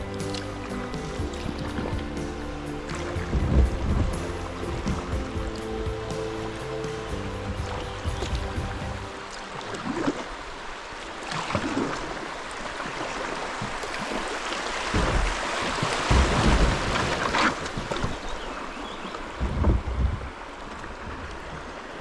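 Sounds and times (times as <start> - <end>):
wind rumbling on microphone: 0.0 - 9.2, 14.9 - 18.3, 19.3 - 21.7
river water splashing around kayak: 0.0 - 22.0.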